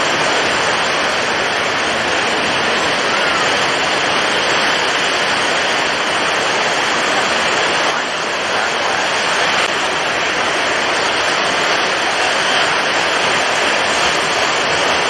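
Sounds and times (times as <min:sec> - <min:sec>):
heavy waves: 0:00.0 - 0:15.0
strong wind: 0:00.0 - 0:15.0.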